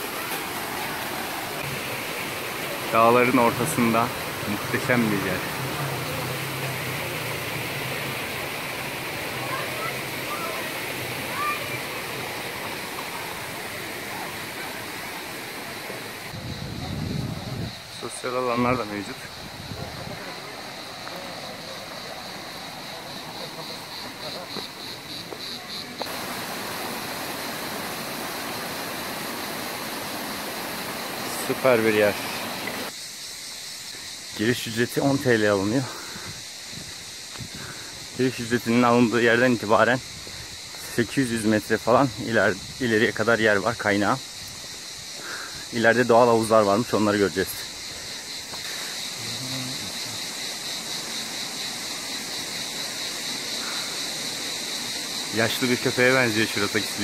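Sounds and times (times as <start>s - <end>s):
high-pitched insect drone: 0.0s - 57.0s
rushing stream water: 0.0s - 57.0s
steady hiss: 0.0s - 57.0s.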